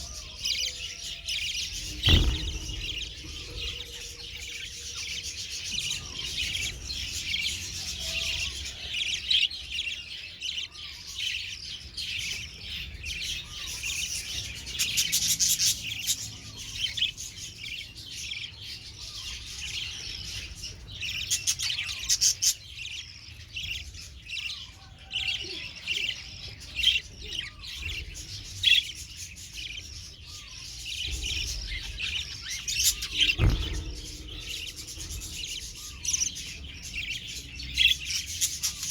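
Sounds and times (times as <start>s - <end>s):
budgerigars chirping: 0.0s - 38.9s
low thump: 1.7s - 4.7s, 31.0s - 37.0s.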